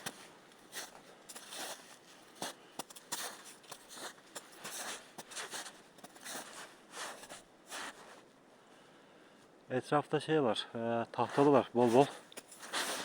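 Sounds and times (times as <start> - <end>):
footsteps crunching on forest floor: 0.0 - 8.3, 11.2 - 13.0.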